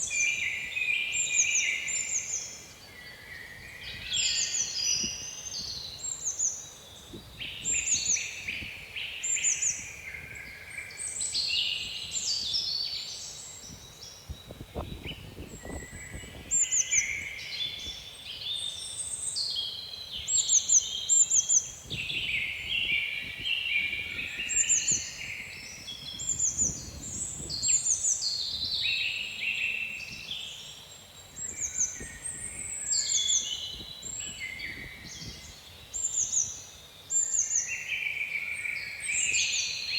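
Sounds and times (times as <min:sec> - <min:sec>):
songbirds singing in chorus: 0:00.0 - 0:39.9
low rumbling wind gusts: 0:07.0 - 0:08.9, 0:13.6 - 0:18.2, 0:21.8 - 0:28.9, 0:31.4 - 0:35.7.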